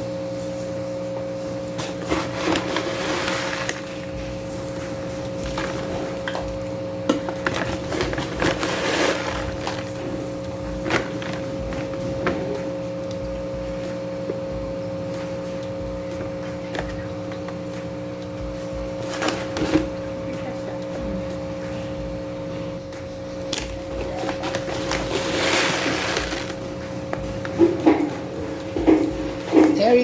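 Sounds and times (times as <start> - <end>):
steady low hum: 0.0 - 30.0
soil granules poured into glass tank: 25.1 - 26.6.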